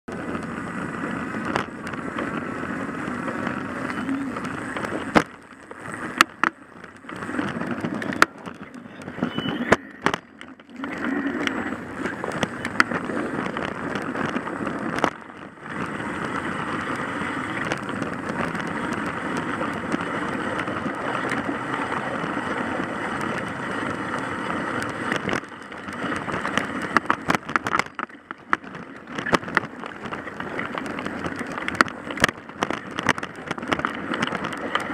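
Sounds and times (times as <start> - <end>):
road and tyre noise: 0.0 - 34.9
sharp clicks and knocks: 1.3 - 2.5, 3.1 - 21.6, 24.7 - 34.9.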